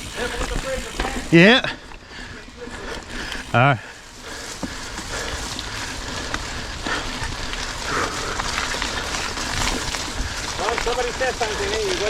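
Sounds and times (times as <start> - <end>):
bike clicking and rattling: 0.0 - 12.0
rain hissing: 0.0 - 12.0.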